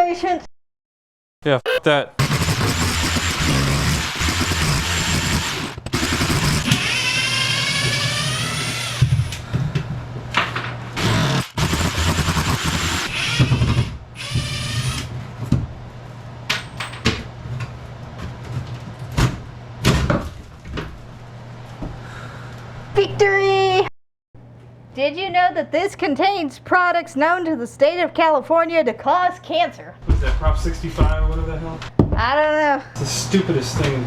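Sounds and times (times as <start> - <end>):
power drill driving screws: 2.2 - 9.4, 11.0 - 15.1.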